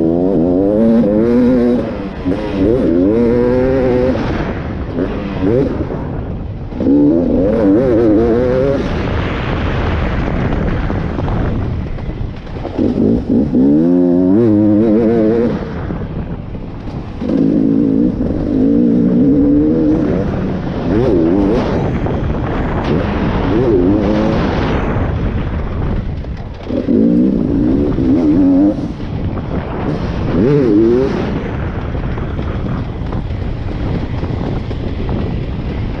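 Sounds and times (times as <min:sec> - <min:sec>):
two-stroke motocross engine revving: 0:00.0 - 0:06.1, 0:06.8 - 0:09.0, 0:12.7 - 0:15.9, 0:17.2 - 0:24.9, 0:26.6 - 0:29.1, 0:29.7 - 0:31.6.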